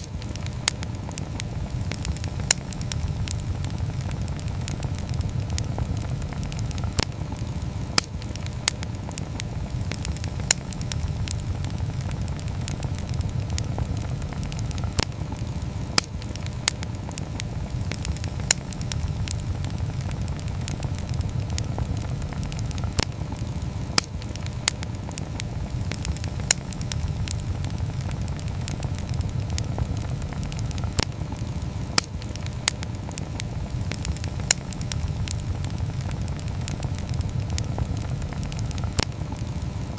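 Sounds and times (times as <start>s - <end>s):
campfire flames rumbling: 0.0s - 39.9s
fire crackling and popping: 0.0s - 39.9s.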